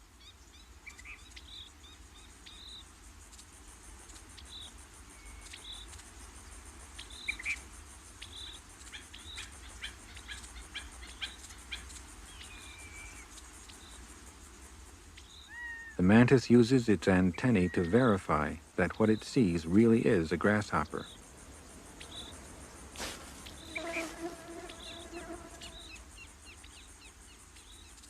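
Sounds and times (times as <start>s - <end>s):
high chirps and calls: 15.2s - 28.0s.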